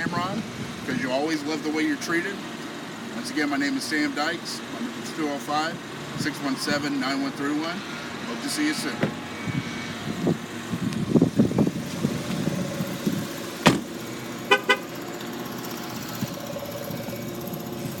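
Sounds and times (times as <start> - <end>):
car horn toots: 14.4 - 14.9.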